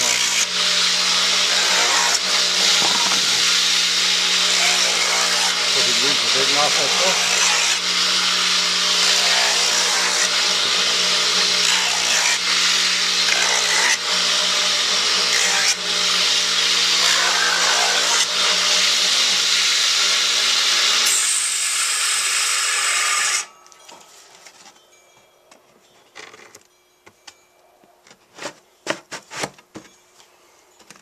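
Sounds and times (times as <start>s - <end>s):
electric power tool under load: 0.0s - 23.6s.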